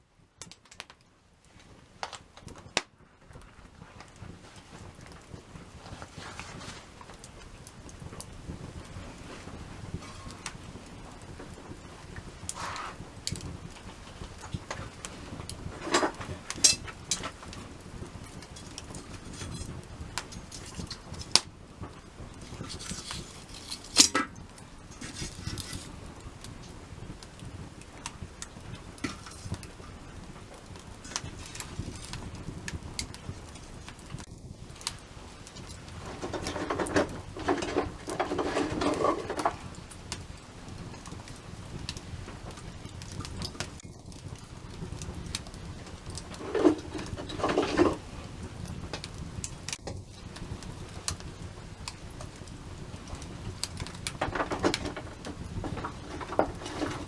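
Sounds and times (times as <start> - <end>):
campfire crackling and popping: 0.2 - 57.0
rustling: 3.2 - 40.4, 45.6 - 48.8, 53.0 - 57.0.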